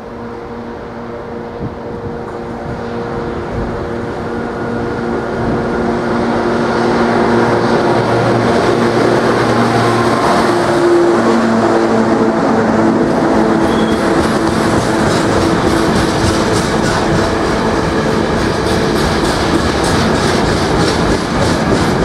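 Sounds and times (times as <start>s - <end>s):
locomotive humming: 0.0s - 22.0s
wheels rumbling on rail: 0.0s - 22.0s.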